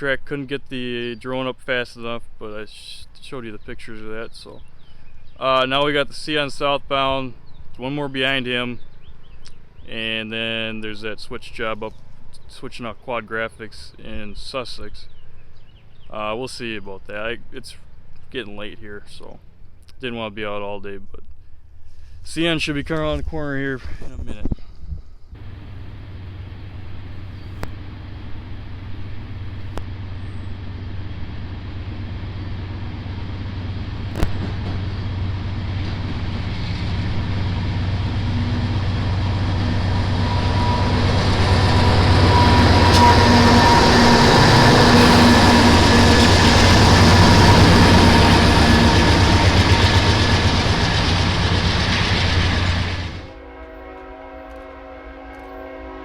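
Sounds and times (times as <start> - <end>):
diesel train passing: 25.4 - 56.0
locomotive horn chord: 29.1 - 56.0.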